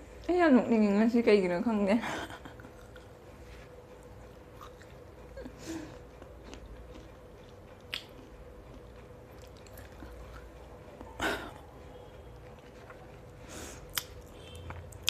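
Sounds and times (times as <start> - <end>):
person chewing fruit: 2.7 - 15.0.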